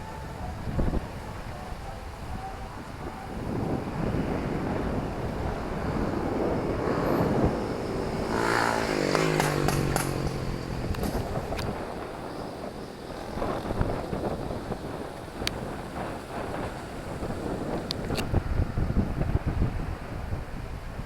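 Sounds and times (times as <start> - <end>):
street traffic rumble: 0.0 - 21.0
vehicle passing close by: 3.6 - 12.6
sharp clicks: 9.1 - 11.7.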